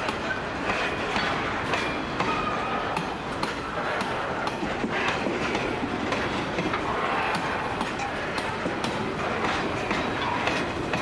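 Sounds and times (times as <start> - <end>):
freight train wheels rumbling on rail: 0.0 - 11.0
clicks and clunks of wagons: 3.3 - 11.0.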